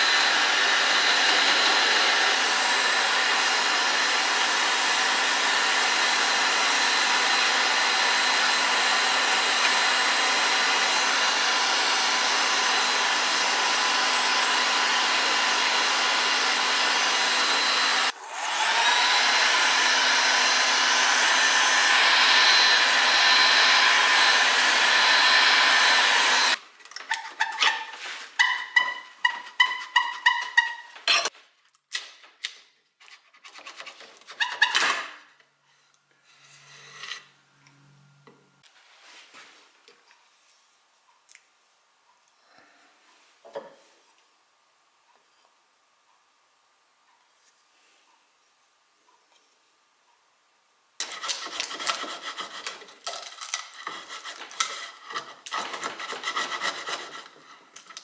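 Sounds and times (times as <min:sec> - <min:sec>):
power tool motor running: 0:00.0 - 0:26.6
hand scraping on wood: 0:53.8 - 0:57.6.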